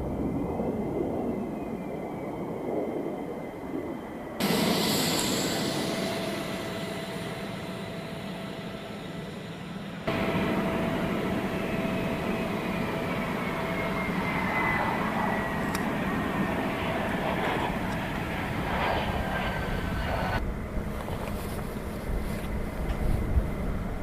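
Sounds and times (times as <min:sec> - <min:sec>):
jet engine roaring: 0:00.0 - 0:24.0
high whine falling in pitch: 0:03.8 - 0:20.8.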